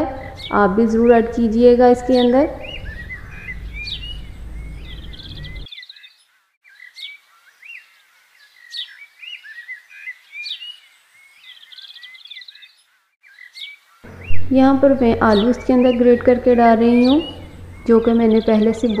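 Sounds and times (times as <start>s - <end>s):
low steady hum: 0.0s - 5.7s, 14.1s - 19.0s
songbirds chirping: 0.0s - 19.0s.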